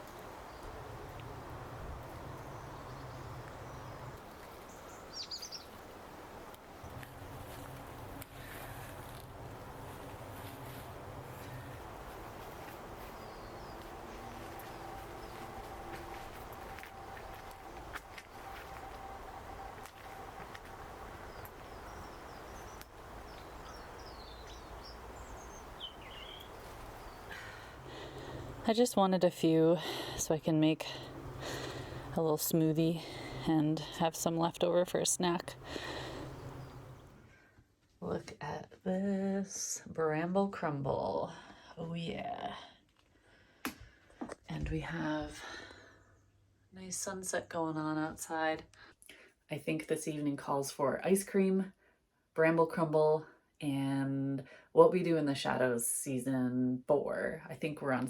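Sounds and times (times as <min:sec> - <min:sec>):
outdoor background noise: 0:00.0 - 0:58.0
small birds chirping: 0:02.0 - 0:06.0, 0:10.4 - 0:29.0, 0:32.9 - 0:37.2
small bird chirping: 0:02.4 - 0:05.8, 0:19.2 - 0:27.4
low rumble: 0:09.0 - 0:25.4
lower falling bird call: 0:12.8 - 0:28.6, 0:35.6 - 0:37.1.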